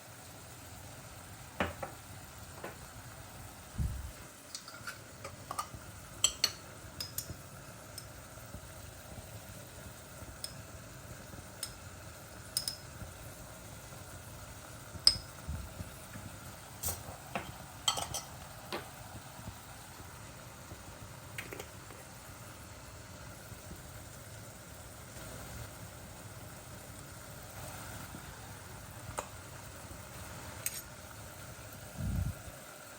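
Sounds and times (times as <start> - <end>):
food sizzling: 0.0 - 32.9
utensil stirring in a pan: 4.4 - 8.7
utensil clinking on cookware: 4.5 - 7.4, 12.5 - 12.9, 15.0 - 15.3, 16.8 - 18.9, 30.6 - 30.9.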